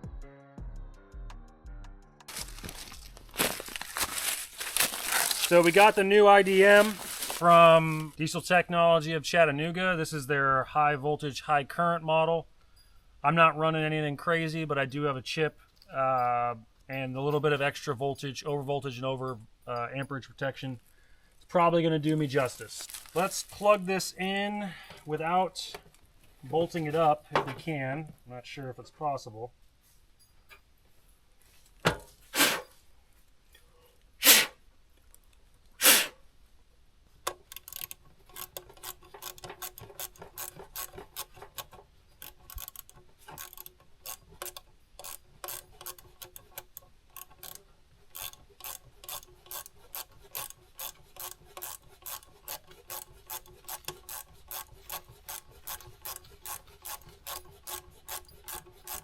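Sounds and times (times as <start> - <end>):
ratchet clicking: 37.3 - 59.0.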